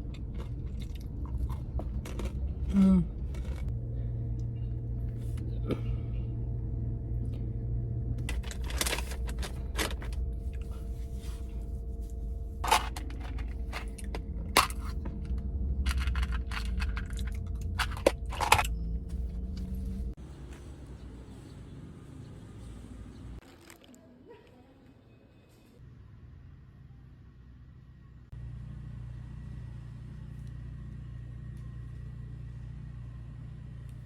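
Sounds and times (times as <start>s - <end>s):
steady low hum: 0.0s - 23.4s
crunches and crinkles of handling: 8.2s - 20.8s, 23.4s - 24.6s.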